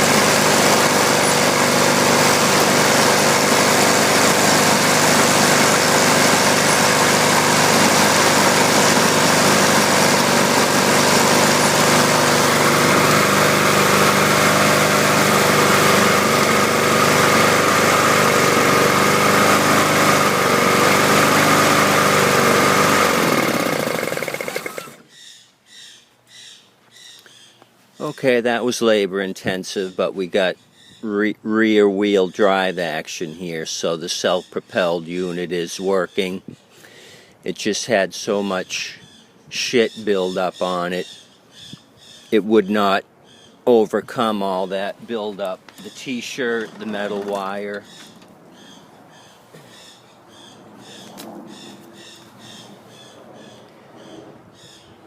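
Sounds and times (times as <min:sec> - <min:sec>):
lawn mower engine running: 0:00.0 - 0:25.1, 0:44.4 - 0:48.5.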